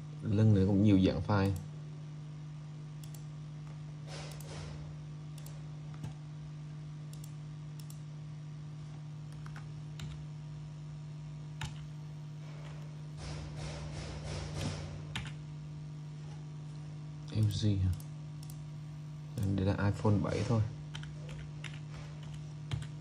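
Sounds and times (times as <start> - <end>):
steady low hum: 0.0 - 23.0
computer mouse clicks: 3.0 - 3.3, 4.3 - 4.6, 5.4 - 6.2, 7.1 - 8.0, 9.3 - 10.2, 17.3 - 18.6.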